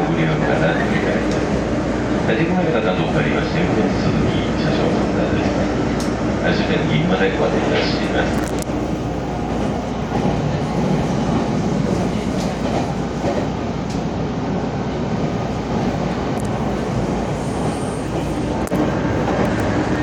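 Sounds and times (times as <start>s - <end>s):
subway train wheels rumbling: 0.0s - 20.0s
faint track clicks: 6.0s - 6.2s, 8.0s - 8.8s, 18.0s - 19.8s.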